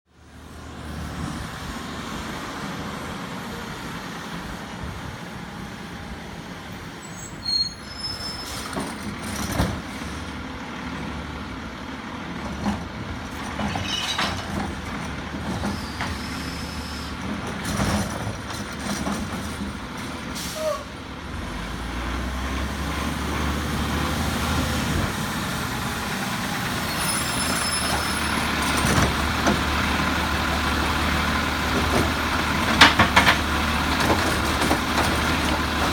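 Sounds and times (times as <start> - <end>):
metal clanks: 13.4 - 14.8
air brake hisses: 15.7 - 17.2, 20.4 - 20.9
truck engine running: 27.7 - 35.9.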